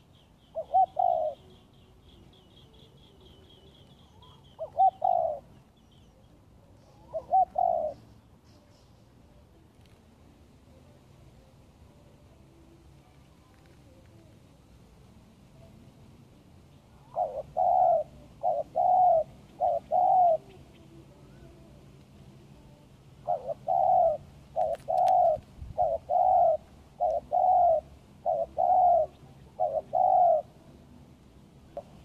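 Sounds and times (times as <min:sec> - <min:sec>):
dove cooing: 0:00.0 - 0:08.2, 0:16.8 - 0:21.8, 0:23.2 - 0:30.8.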